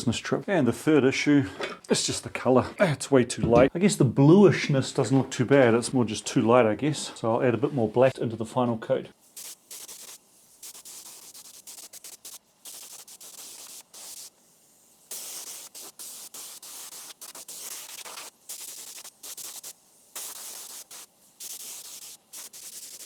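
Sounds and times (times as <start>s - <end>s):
paint spray gun hissing: 9.2s - 23.0s.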